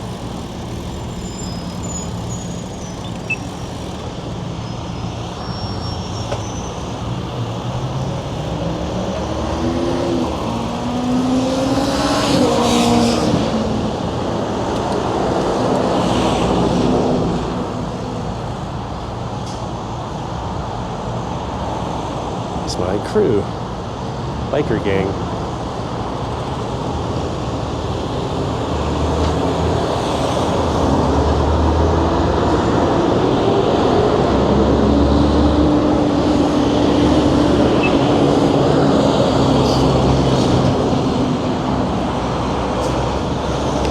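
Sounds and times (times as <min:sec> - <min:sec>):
traffic rumble: 0:00.0 - 0:43.9
vehicle engine accelerating: 0:26.7 - 0:43.9.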